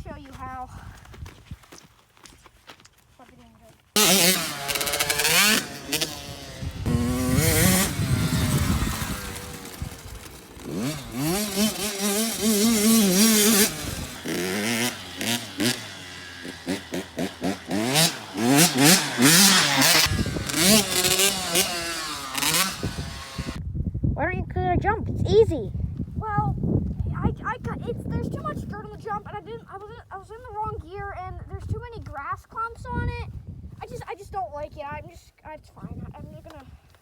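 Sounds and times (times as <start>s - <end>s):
dirt bike engine revving: 4.0s - 23.6s.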